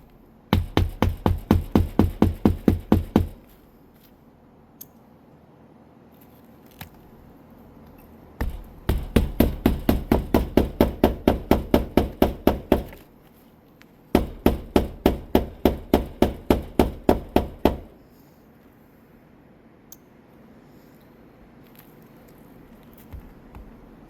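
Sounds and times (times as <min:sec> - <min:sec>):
hammer driving nails into shingle: 0:00.5 - 0:03.4, 0:08.4 - 0:13.1, 0:14.1 - 0:18.0.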